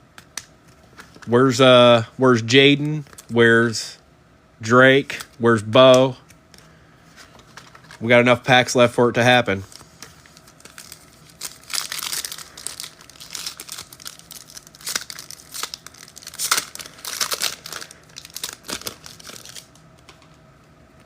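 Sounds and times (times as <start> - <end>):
card pack wrapper crinkling and tearing: 9.7 - 20.2.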